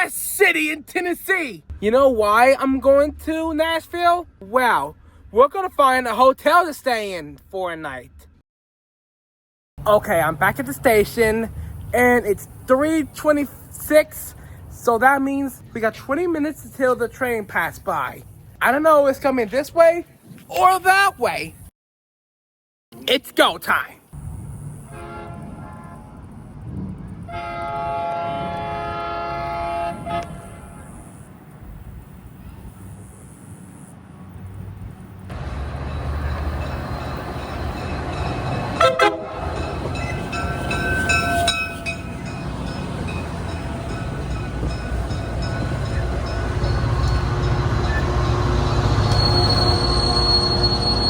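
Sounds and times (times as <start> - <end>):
train rumble: 24.2 - 51.0
locomotive air horn: 24.8 - 26.3, 27.2 - 31.2, 38.6 - 42.2, 45.2 - 51.0
high squeal of wheels: 39.7 - 42.8, 45.5 - 51.0.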